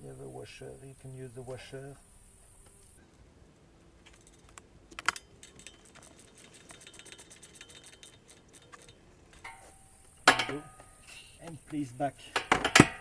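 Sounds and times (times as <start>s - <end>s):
small metal parts handled: 4.0s - 11.0s.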